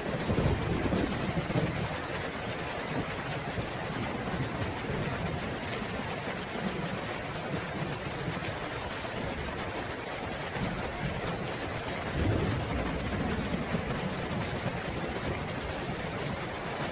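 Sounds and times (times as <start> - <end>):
low thunder rumble: 0.0 - 2.1, 12.0 - 16.5
heavy rain: 0.0 - 16.9.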